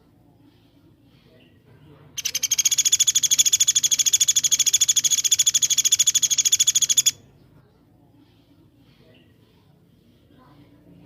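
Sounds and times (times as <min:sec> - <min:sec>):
songbird rapid high call notes: 0:02.2 - 0:07.2.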